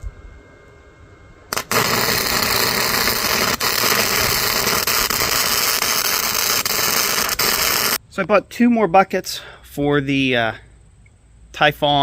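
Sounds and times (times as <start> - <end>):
welding arc crackling: 1.5 - 8.0.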